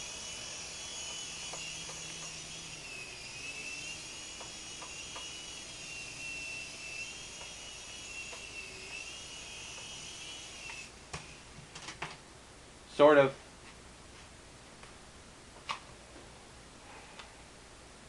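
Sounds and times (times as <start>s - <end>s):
rc helicopter motor whining: 0.0s - 10.9s.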